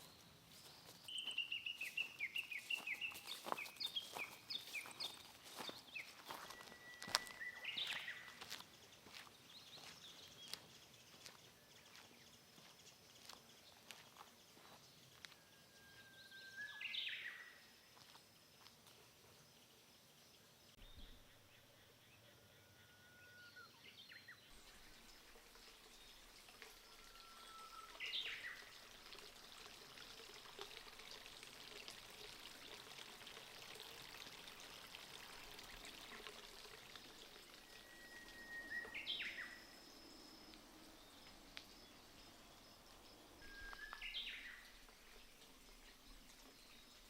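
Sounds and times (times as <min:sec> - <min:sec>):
faint stream hiss: 0:00.0 - 0:47.0
bird singing whistled notes: 0:01.0 - 0:08.4, 0:15.3 - 0:17.6, 0:37.6 - 0:42.4, 0:43.4 - 0:44.8.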